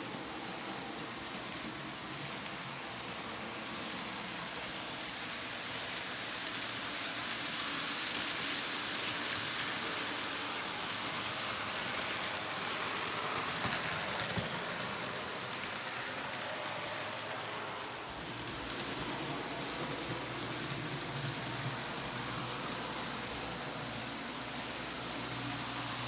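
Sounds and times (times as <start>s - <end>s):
model train rolling on track: 0.0s - 26.0s.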